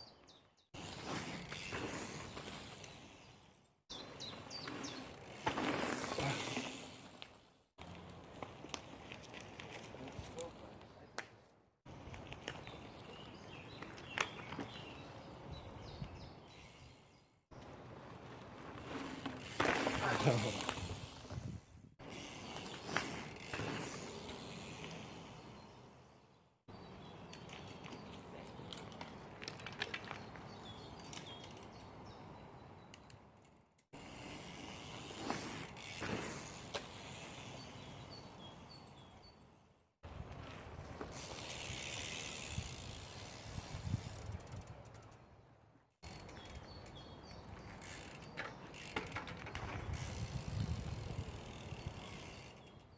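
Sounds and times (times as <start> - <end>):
bike tyres rolling on dirt: 0.0 - 52.9
bike clicks and rattles: 0.2 - 25.8, 26.8 - 39.4, 40.1 - 52.9
birds chirping: 2.1 - 6.5, 11.9 - 18.1, 24.0 - 33.4, 36.6 - 39.7, 45.0 - 50.4.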